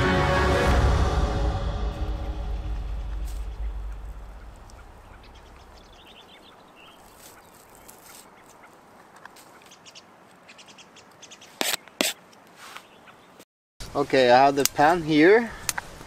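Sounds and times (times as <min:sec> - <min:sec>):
background music: 0:00.0 - 0:05.6
bird calls: 0:02.8 - 0:13.4.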